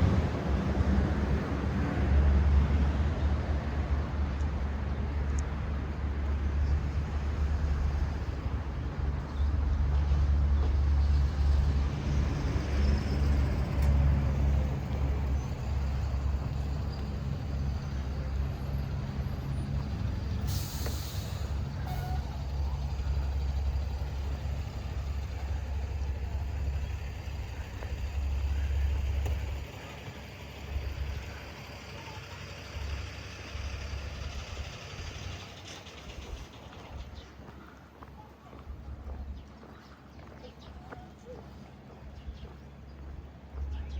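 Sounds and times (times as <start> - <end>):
heavy vehicle engine rumbling: 0.0 - 43.9
short sharp hiss: 20.5 - 21.6.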